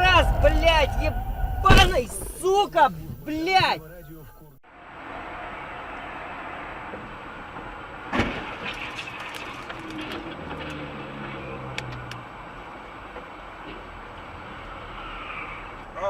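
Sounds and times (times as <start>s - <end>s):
car collision crash: 0.0s - 3.8s, 6.2s - 11.7s
road traffic noise: 0.0s - 16.0s
clattering and ticking debris: 8.1s - 12.2s.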